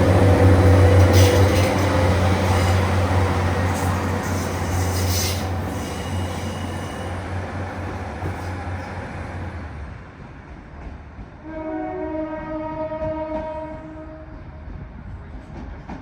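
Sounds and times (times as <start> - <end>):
train horn: 0.0 - 7.1, 11.4 - 14.7
train rumble: 0.0 - 16.0.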